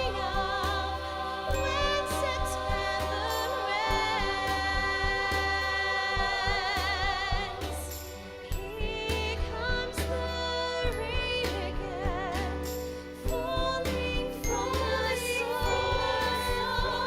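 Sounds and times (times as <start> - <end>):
band accompaniment: 0.0 - 17.0
group singing in harmony: 0.0 - 17.0
pulsing bass: 0.0 - 17.0.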